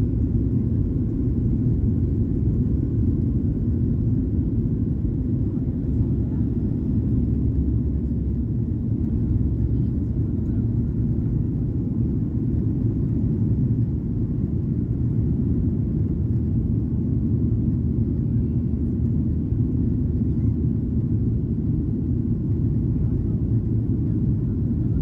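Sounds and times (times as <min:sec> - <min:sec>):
jet engines rumbling in cabin: 0:00.0 - 0:25.0.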